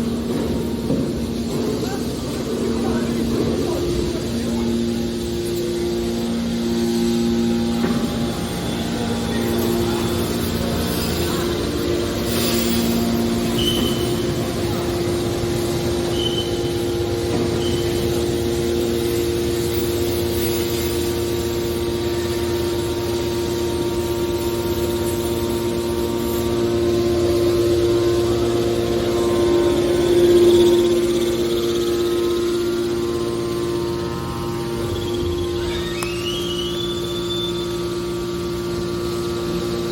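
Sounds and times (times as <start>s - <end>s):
motor and pump humming: 0.0s - 39.9s
brief high squeaks: 35.3s - 37.8s.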